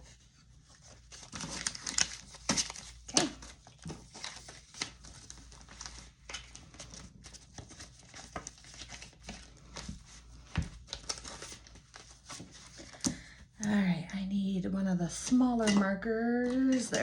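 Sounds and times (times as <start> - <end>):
paper rustling and crinkling: 0.0 - 13.2.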